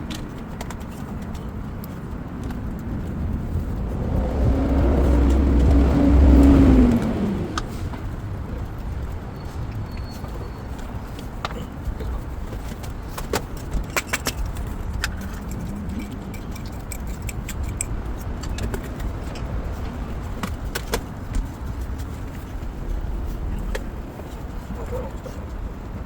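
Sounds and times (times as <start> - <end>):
busy street rumble: 0.0 - 26.0
sharp clicks and clinks: 13.2 - 19.5.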